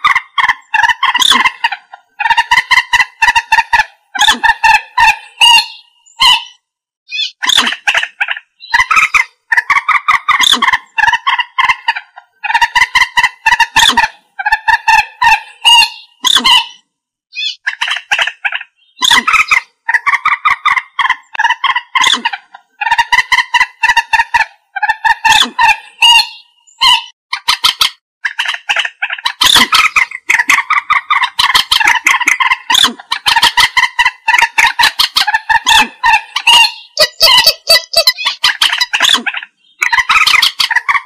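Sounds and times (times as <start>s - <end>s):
moorhen calling: 0.0s - 41.0s.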